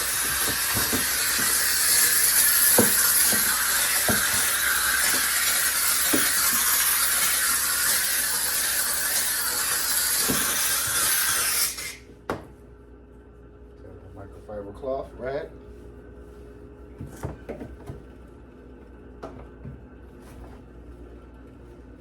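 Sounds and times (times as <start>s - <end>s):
steam cleaner hissing: 0.0s - 12.0s.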